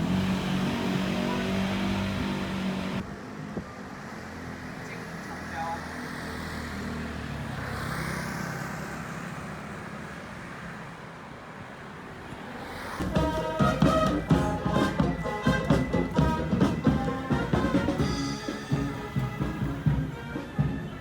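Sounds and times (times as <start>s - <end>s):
vehicle road noise: 0.0s - 21.0s
music with accented beat: 13.0s - 21.0s.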